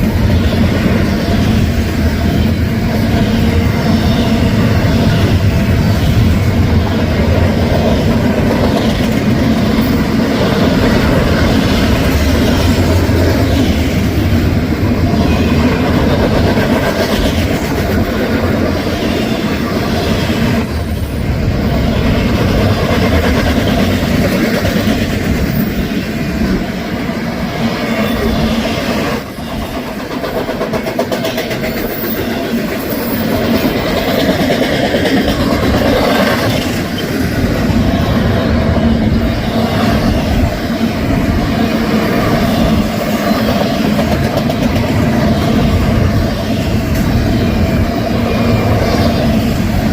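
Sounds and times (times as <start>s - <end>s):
freight train rumbling past: 0.0s - 49.9s.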